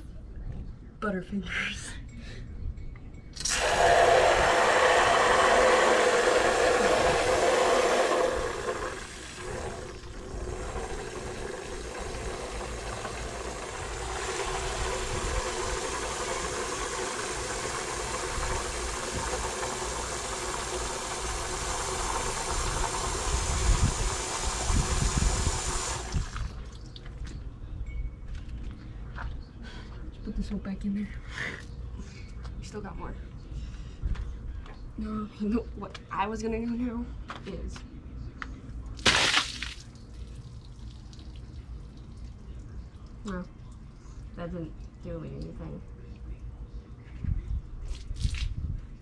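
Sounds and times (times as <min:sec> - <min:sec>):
water rushing: 0:03.5 - 0:26.4.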